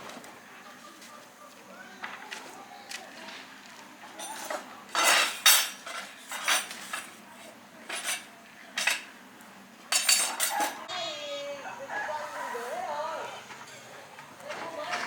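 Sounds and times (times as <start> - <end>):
metal objects clinking and scraping: 4.2 - 7.2, 7.8 - 9.1, 9.9 - 10.8.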